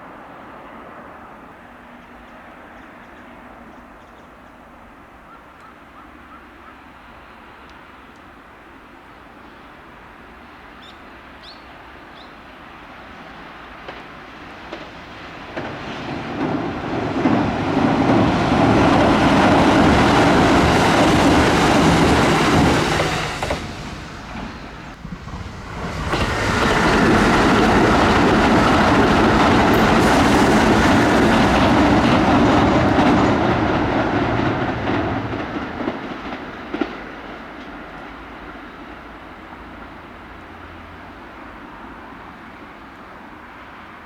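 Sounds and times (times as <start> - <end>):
electric train passing: 0.0 - 44.0
wheels clacking over rail joints: 13.8 - 38.6.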